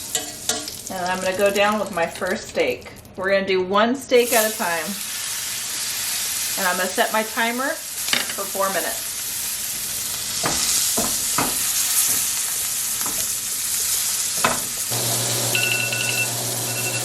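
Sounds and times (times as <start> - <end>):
steak sizzling in a skillet: 4.2 - 17.0
short electronic beeping: 15.5 - 17.0.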